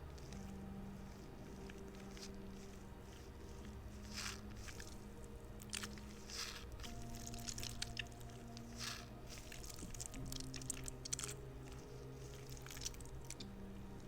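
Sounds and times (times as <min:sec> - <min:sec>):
rubber toy squelching: 0:00.0 - 0:13.5
steady low hum: 0:00.0 - 0:14.0.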